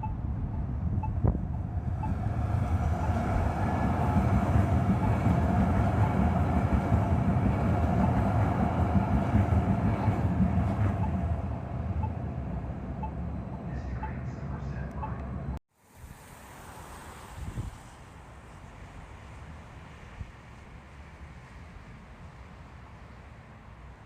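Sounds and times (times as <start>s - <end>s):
large vehicle passing: 1.4s - 15.6s.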